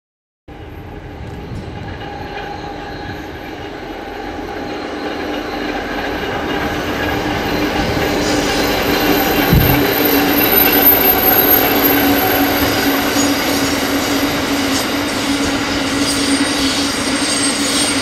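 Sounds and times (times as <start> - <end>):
train engines and wagons rumbling: 0.5 - 18.0
steady tones: 2.7 - 15.2.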